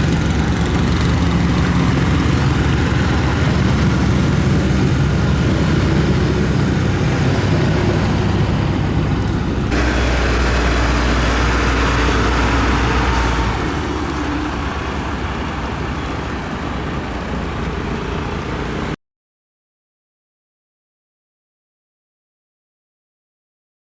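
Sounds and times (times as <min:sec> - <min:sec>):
heavy machine engines running: 0:00.0 - 0:19.0.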